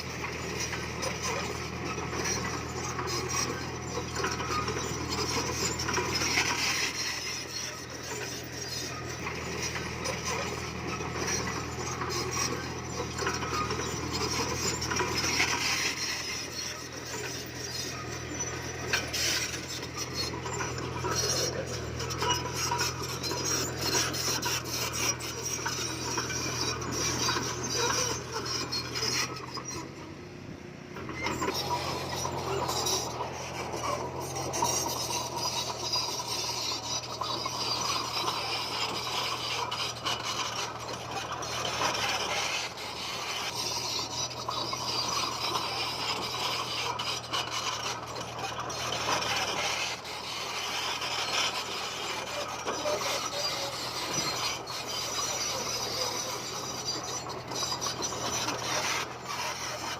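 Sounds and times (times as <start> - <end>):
bulldozer engine hum: 0.0 - 59.9
stone scraping and grinding: 0.6 - 29.9, 31.1 - 59.9.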